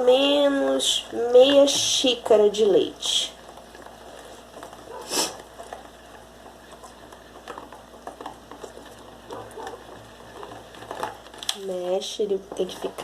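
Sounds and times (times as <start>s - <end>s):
whisk stirring thick batter: 1.8s - 11.4s.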